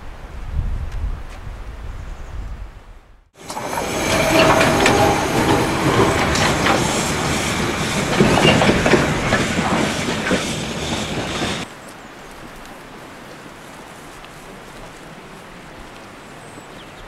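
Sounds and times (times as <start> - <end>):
train wheels clicking over rail joints: 3.4 - 11.7
wheel squeals: 3.4 - 11.7.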